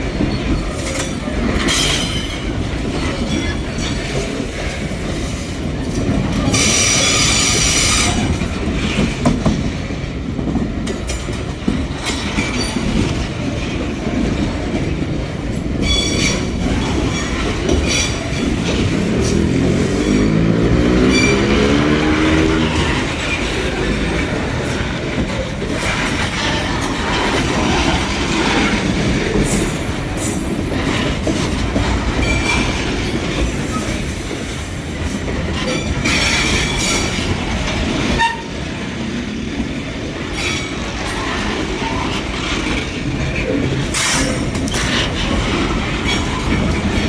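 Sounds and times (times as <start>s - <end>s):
train wagons rumbling and clattering: 0.0s - 47.0s
shrill wheel squeals: 15.8s - 23.4s
engine pitch rising: 19.0s - 23.0s.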